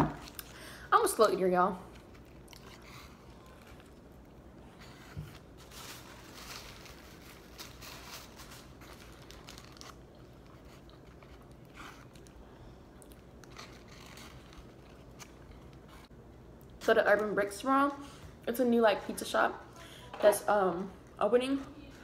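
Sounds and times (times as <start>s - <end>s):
faint chewing: 1.9s - 5.4s, 9.3s - 16.8s
paper wrapper crinkling: 4.8s - 12.4s, 13.1s - 15.9s.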